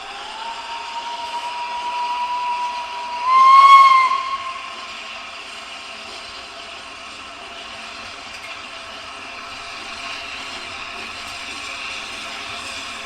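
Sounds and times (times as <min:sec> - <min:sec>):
steam locomotive whistle: 0:00.0 - 0:05.4.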